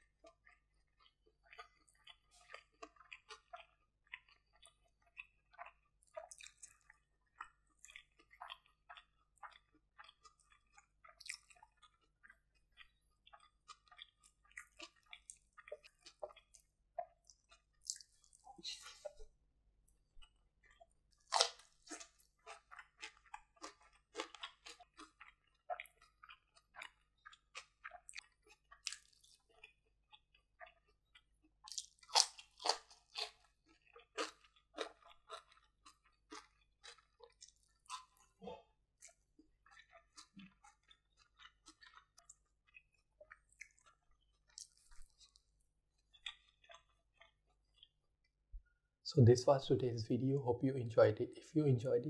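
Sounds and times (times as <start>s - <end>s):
crunchy chewing: 0.1s - 19.2s, 19.9s - 48.0s
wet mouth clicks: 1.5s - 12.0s, 12.8s - 19.3s, 37.2s - 45.4s.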